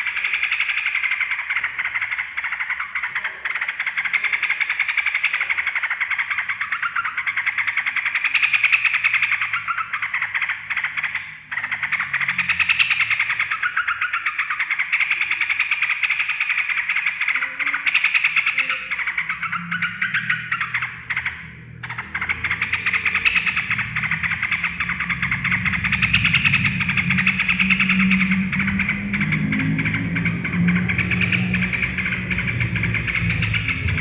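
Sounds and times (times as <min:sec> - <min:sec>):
bulbul chattering: 0:00.0 - 0:34.0.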